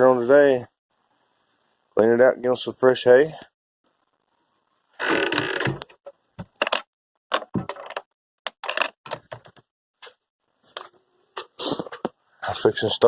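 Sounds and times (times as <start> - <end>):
objects knocking and clattering: 5.7 - 9.7.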